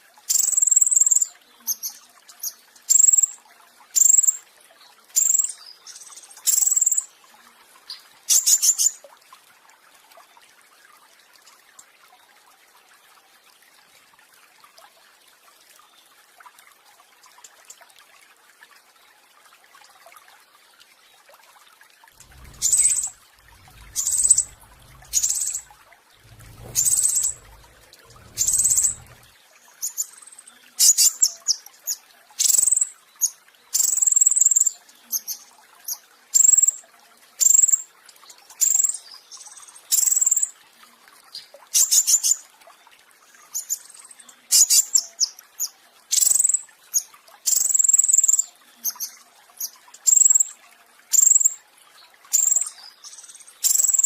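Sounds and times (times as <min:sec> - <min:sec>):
songbird rapid high notes: 0:22.2 - 0:29.3
low rumble: 0:22.2 - 0:29.4.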